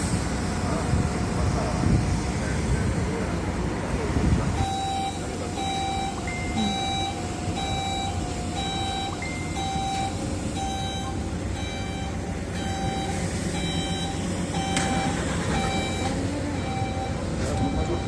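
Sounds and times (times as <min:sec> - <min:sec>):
low engine rumble: 0:00.0 - 0:18.0
reversing alarm beeping: 0:04.6 - 0:18.0.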